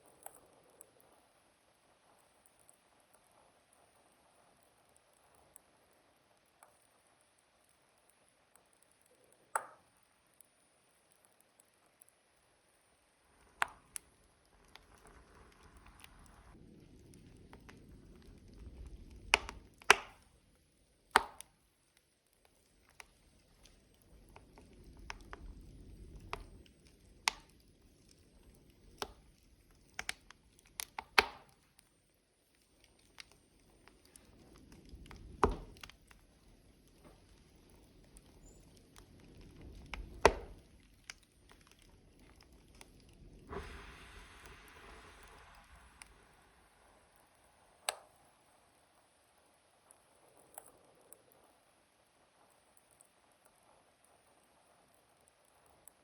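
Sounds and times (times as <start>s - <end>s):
wood fire crackling and popping: 0.0s - 56.0s
low rush of flame: 13.2s - 21.3s, 22.6s - 31.3s, 32.9s - 50.0s.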